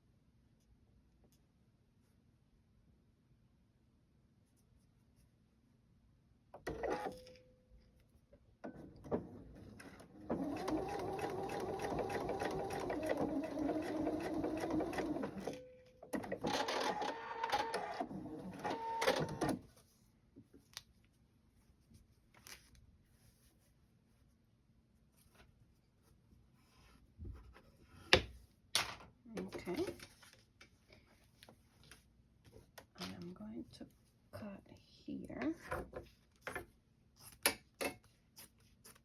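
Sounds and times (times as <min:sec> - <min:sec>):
sewing machine stitching: 0:08.9 - 0:19.6.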